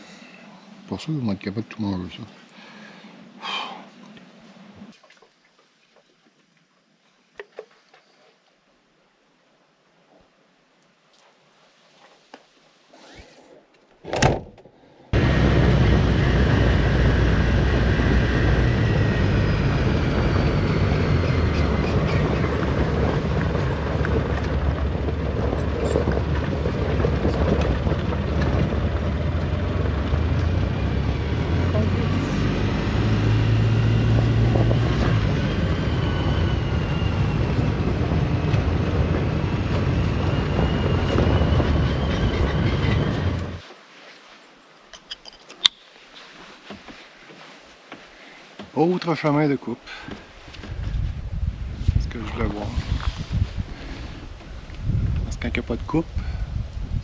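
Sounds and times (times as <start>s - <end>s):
utility vehicle engine drone: 15.1s - 43.6s
vehicle rattling on gravel: 15.2s - 43.6s.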